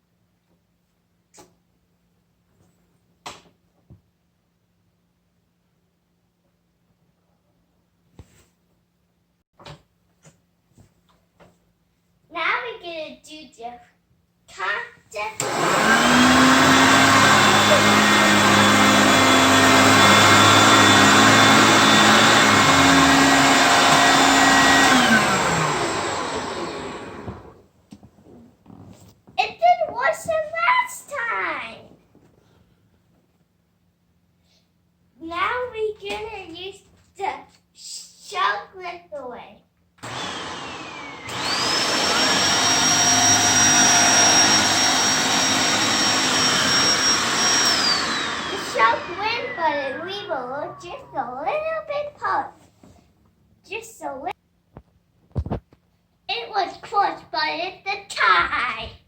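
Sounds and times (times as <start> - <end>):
vacuum cleaner running: 15.3 - 27.6, 40.0 - 51.2
motor winding down whine: 15.4 - 27.6, 40.0 - 51.2.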